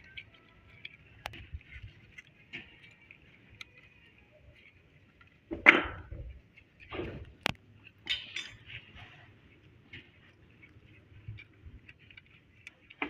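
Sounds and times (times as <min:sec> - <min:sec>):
metallic knocks and clinks of tools: 0:08.0 - 0:08.7.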